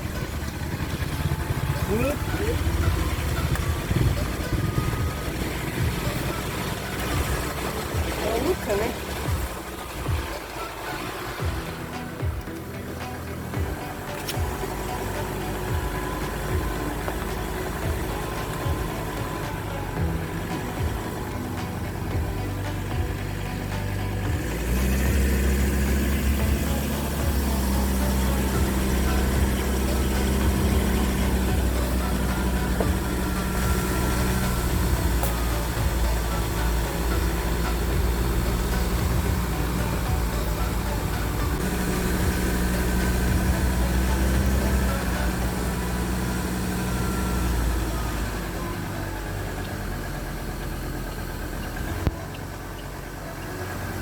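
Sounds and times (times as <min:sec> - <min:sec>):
engine running with low hum: 0:00.0 - 0:54.0.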